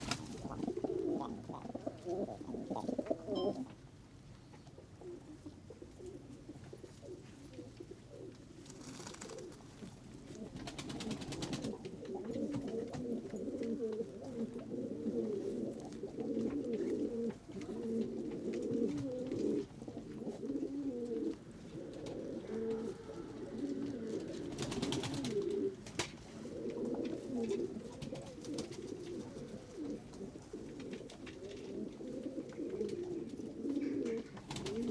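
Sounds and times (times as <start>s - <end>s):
pigeon wings flapping: 0.0s - 0.6s, 8.7s - 9.5s, 10.5s - 11.8s, 24.4s - 26.3s, 34.4s - 34.9s
pigeons cooing: 0.0s - 3.7s, 4.8s - 9.7s, 10.3s - 34.9s.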